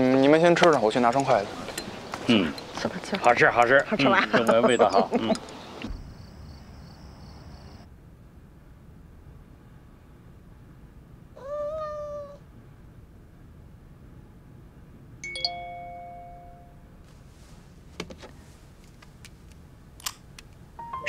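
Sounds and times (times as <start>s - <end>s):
electronic chime: 15.2s - 16.9s.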